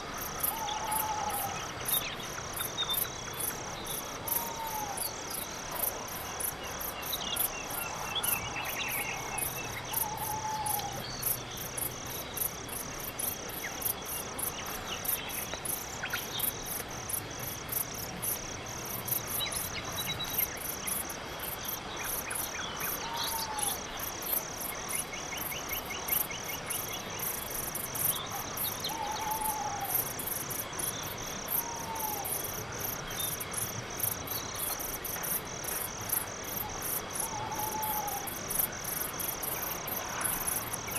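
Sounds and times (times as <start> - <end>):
crickets chirping: 0.0 - 40.9
night animal calls: 37.2 - 38.4.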